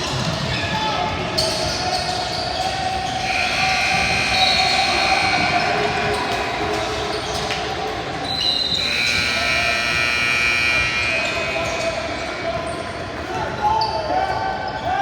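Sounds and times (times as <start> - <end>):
gym crowd din: 0.0 - 15.0
high-pitched shoe squeals: 1.4 - 6.5, 8.2 - 12.9.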